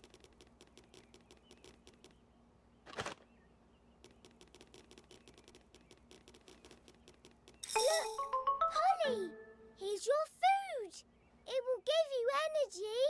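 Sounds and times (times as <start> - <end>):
faint rapid clicking: 0.0 - 2.2, 4.0 - 7.6.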